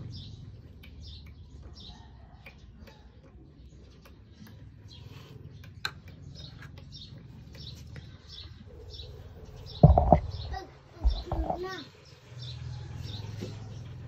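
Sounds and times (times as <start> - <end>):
small birds chirping: 0.0 - 14.0
loud knock: 9.8 - 11.6.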